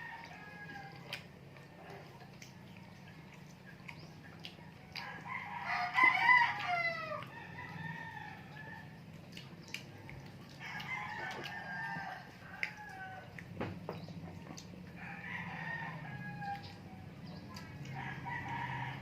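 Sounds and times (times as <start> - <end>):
rooster crowing: 0.0 - 1.1, 5.0 - 9.0, 10.6 - 13.3, 15.0 - 16.7, 17.9 - 19.0.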